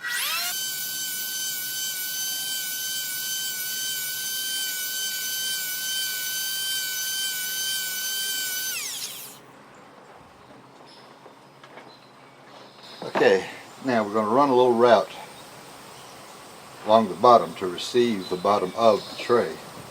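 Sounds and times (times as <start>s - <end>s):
jointer motor whining: 0.0s - 9.4s
motor spinning down: 0.0s - 9.5s.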